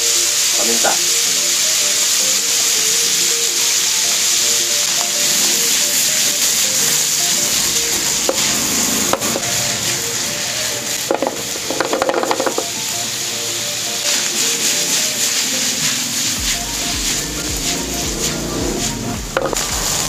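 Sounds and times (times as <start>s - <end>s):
vegetables sizzling in a frying pan: 0.0s - 20.0s
pan clattering: 11.1s - 12.7s.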